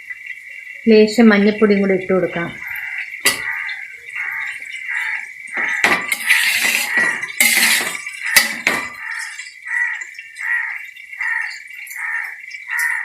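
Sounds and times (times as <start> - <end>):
metal spoon scraping a pan: 2.7 - 4.8, 5.6 - 10.2.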